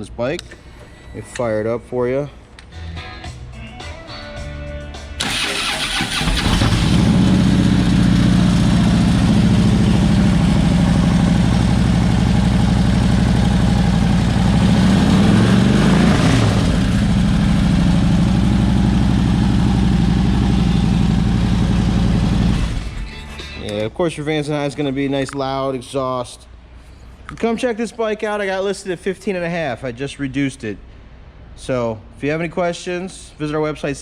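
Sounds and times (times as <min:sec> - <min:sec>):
motorcycle electric starter cranking: 0:05.2 - 0:07.1
motorcycle engine idling: 0:06.9 - 0:14.7, 0:16.8 - 0:22.8.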